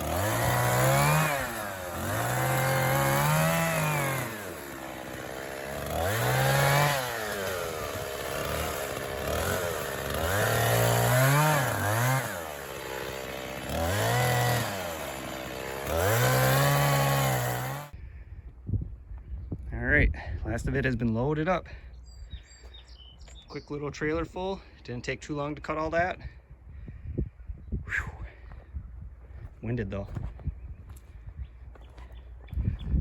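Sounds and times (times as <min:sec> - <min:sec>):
chainsaw revving and idling: 0:00.0 - 0:18.0.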